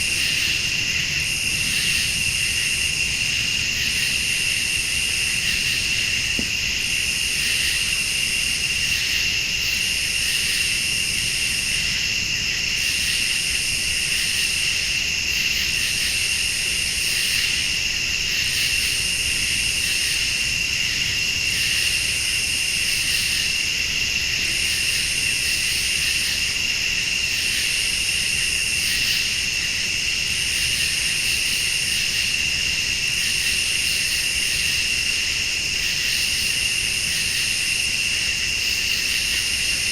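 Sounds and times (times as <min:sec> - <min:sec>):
crickets and insects trilling: 0:00.0 - 0:39.9.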